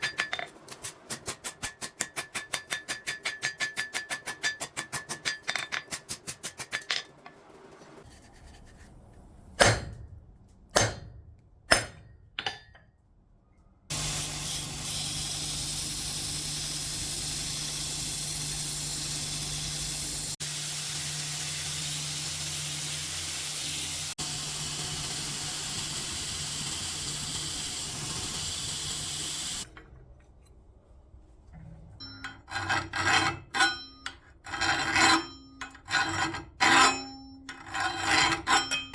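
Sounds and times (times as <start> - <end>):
file rasping on steel: 32.5 - 38.9.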